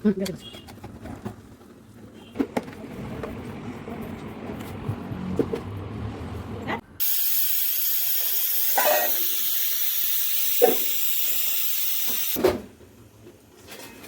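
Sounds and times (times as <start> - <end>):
food hissing in a pot: 7.0 - 12.4.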